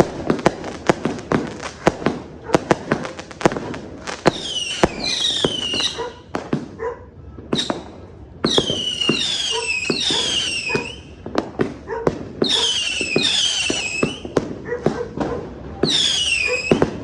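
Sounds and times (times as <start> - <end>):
fireworks bangs: 0.0 - 17.0
fireworks whistles falling in pitch: 4.2 - 6.4, 7.5 - 11.3, 12.4 - 14.4, 15.8 - 17.0.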